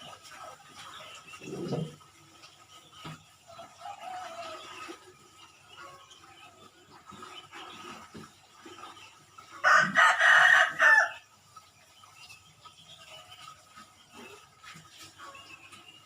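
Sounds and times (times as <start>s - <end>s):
small birds chirping: 0.0s - 16.0s
rooster crowing: 9.6s - 11.2s.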